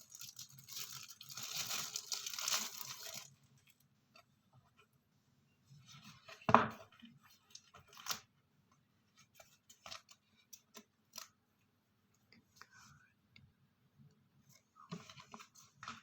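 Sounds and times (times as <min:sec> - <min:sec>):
sticker packaging crinkling: 0:00.0 - 0:03.3.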